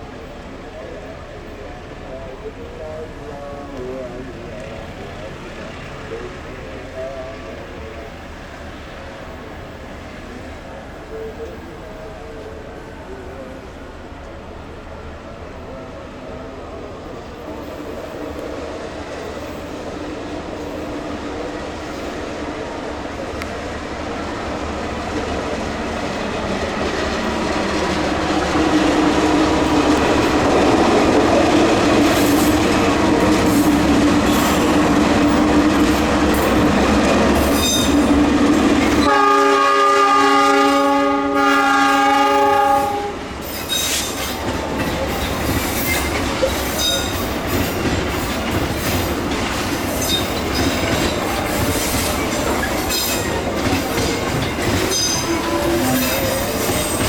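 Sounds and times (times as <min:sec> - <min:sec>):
diesel locomotive rumble: 0:00.0 - 0:57.0
train chord horn: 0:39.0 - 0:43.3, 0:54.9 - 0:57.0
wheels clattering over rail joints: 0:43.4 - 0:57.0.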